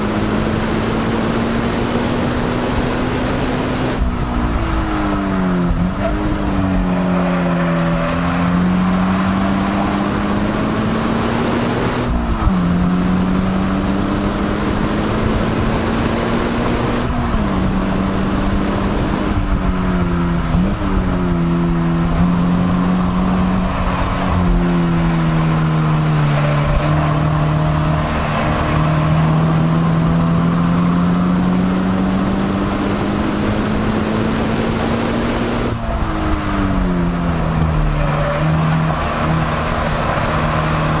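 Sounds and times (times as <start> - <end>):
car engine at high revs: 0.0 - 41.0.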